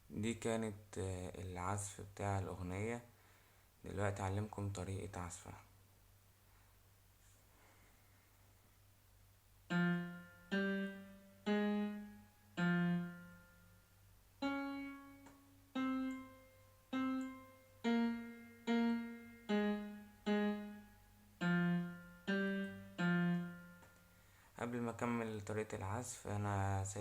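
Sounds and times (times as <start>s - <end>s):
keyboard notes played slowly: 9.6s - 24.4s.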